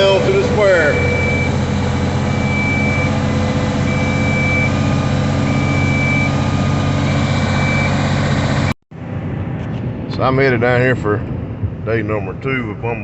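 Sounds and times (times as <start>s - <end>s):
high-pitched alarm beeping: 0.0s - 1.6s, 2.2s - 3.2s, 3.8s - 6.4s
diesel engine running: 0.0s - 10.2s.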